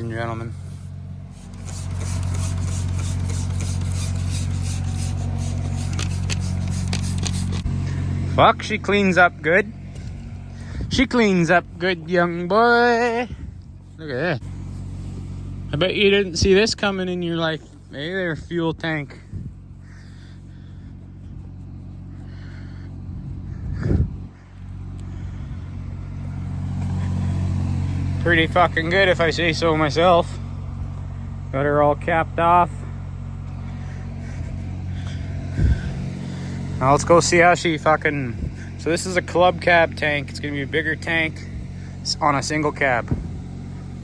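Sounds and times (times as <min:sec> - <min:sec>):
scrubbing on steel tank: 0:00.0 - 0:08.0, 0:09.9 - 0:22.8
engine running: 0:00.0 - 0:44.0
low steady hum: 0:00.0 - 0:44.0.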